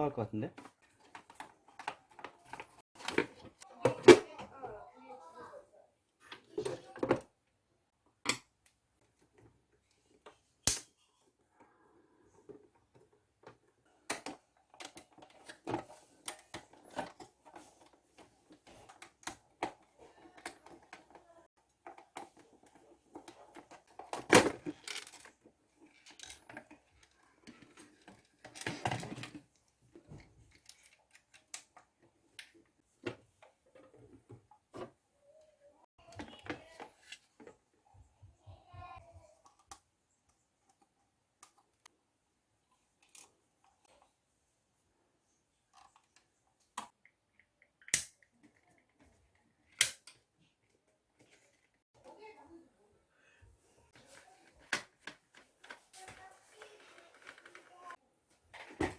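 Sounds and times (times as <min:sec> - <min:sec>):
plastic toy parts clicking: 0:46.8 - 0:48.8.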